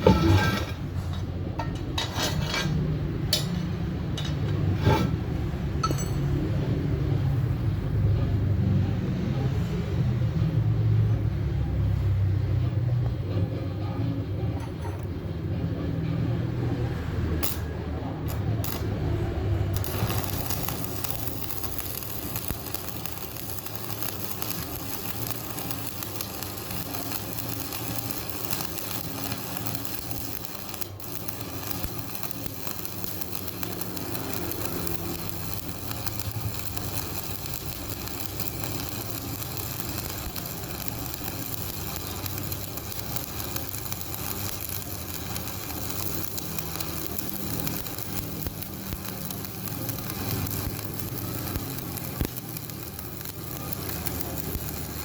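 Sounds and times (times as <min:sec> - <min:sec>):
welding arc crackling: 0:17.1 - 0:55.0.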